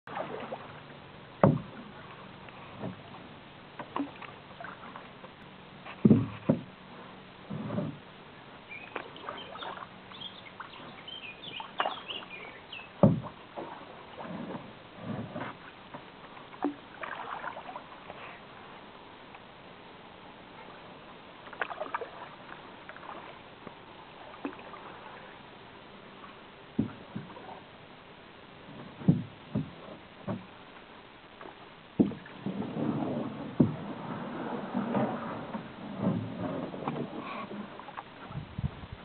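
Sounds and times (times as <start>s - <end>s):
paddle splashing water: 0.0s - 19.4s, 20.4s - 39.0s
sharp knocks: 1.4s - 1.7s, 6.0s - 6.7s, 13.0s - 13.3s, 32.0s - 32.2s.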